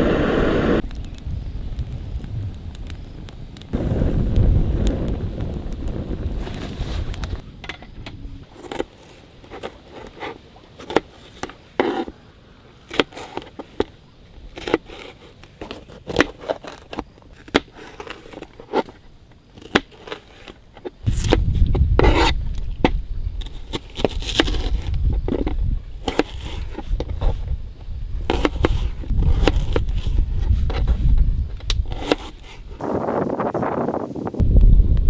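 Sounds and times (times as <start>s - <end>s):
low rumble: 34.4s - 35.0s.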